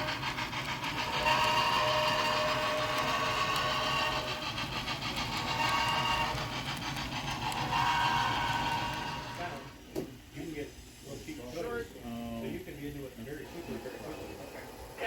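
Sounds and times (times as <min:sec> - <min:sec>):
locomotive low running rumble: 0:00.0 - 0:09.8
model locomotive horn blasts: 0:01.0 - 0:04.4, 0:05.4 - 0:06.6, 0:07.4 - 0:09.7.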